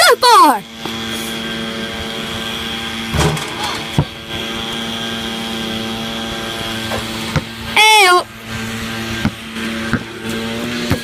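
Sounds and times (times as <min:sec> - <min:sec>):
steady engine drone: 0:00.0 - 0:11.0
sharp thump: 0:03.1 - 0:04.2.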